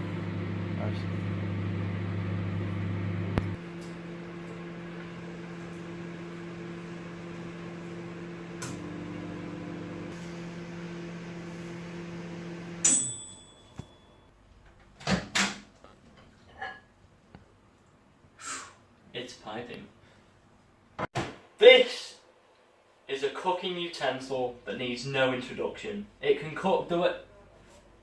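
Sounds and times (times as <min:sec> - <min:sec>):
microwave oven humming: 0:00.0 - 0:14.3
microwave timer ding: 0:12.8 - 0:14.3.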